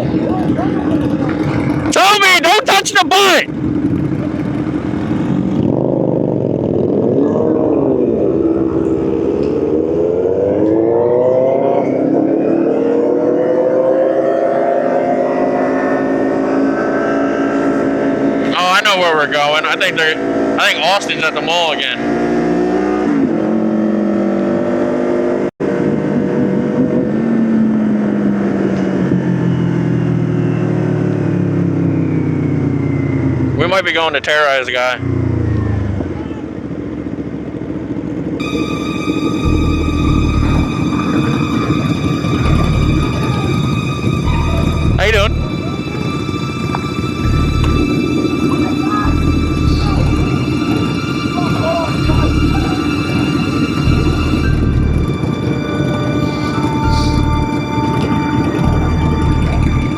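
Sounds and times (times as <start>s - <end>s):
motorcycle engines running: 0.0s - 59.9s
steady rushing noise: 36.0s - 59.9s.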